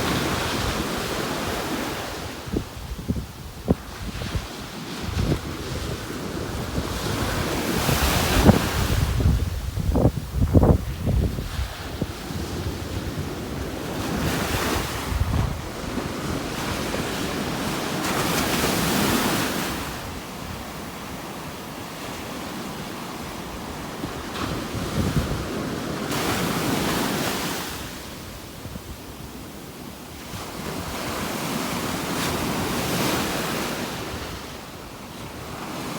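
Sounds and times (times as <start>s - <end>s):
wind buffeting microphone: 0.0s - 20.7s, 24.0s - 26.8s
ocean surf breaking on beach: 0.0s - 35.9s.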